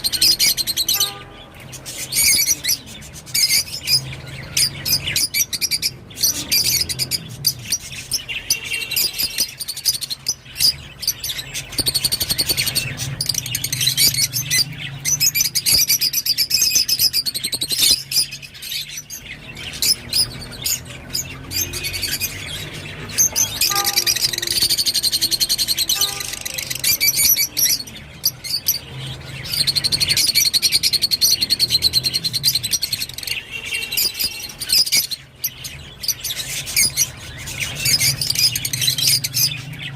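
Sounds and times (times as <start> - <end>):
lovebird chattering: 19.6 - 28.8.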